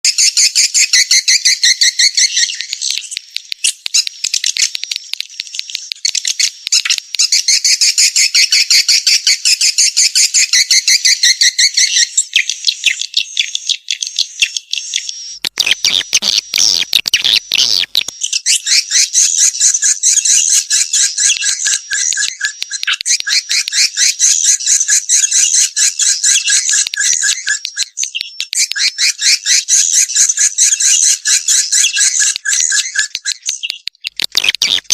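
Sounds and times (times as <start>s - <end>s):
swiftlets chirping and twittering: 0.1s - 34.9s
harsh rasping call: 15.4s - 18.1s.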